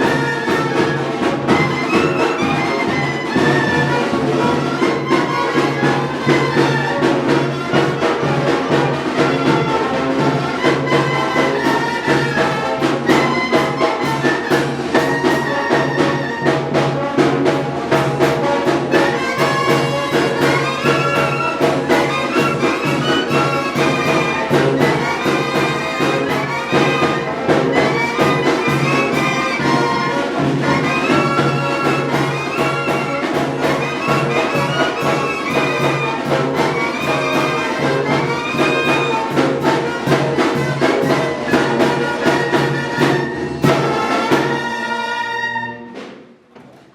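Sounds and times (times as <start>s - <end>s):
steady drum beat: 0.0s - 45.1s
brass melody: 0.0s - 46.5s.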